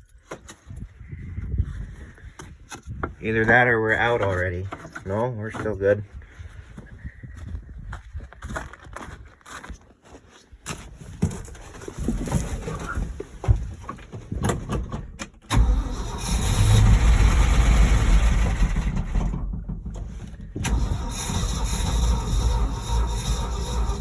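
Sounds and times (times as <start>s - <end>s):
truck engine cranking and starting: 14.9s - 24.0s.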